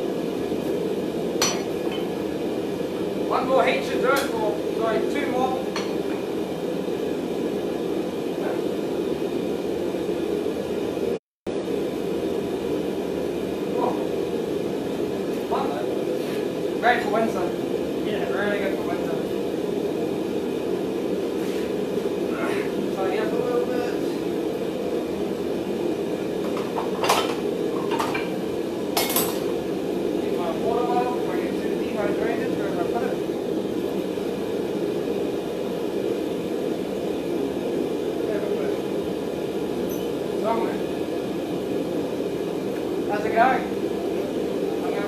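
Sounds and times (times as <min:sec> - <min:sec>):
forge roaring: 0:00.0 - 0:26.5.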